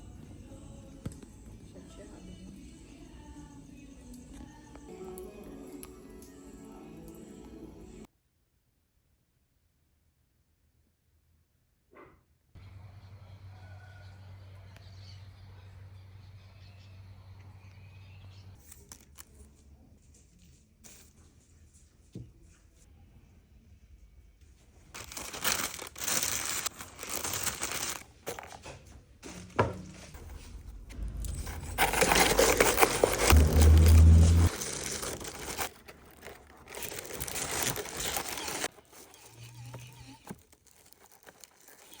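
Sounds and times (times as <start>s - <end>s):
dry material crinkling: 24.9s - 29.5s, 31.4s - 42.0s.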